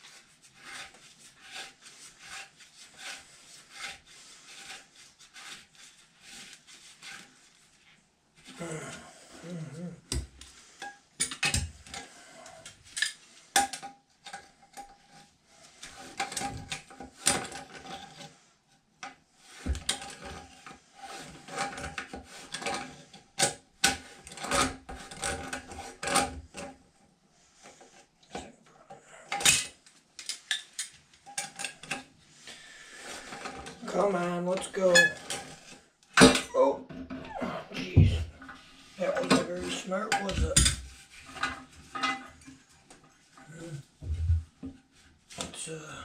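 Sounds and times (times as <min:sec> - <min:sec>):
tools scraping metal fitting: 0:34.8 - 0:35.8.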